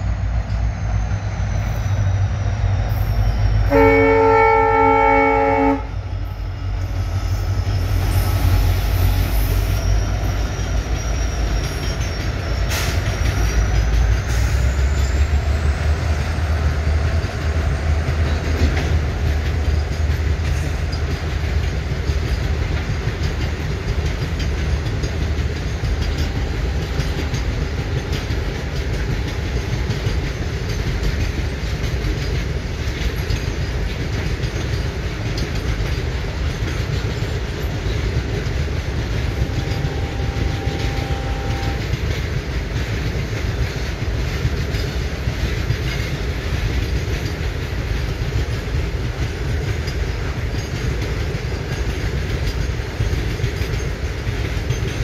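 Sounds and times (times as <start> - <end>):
train horn blast: 3.6 - 6.1, 39.2 - 42.0.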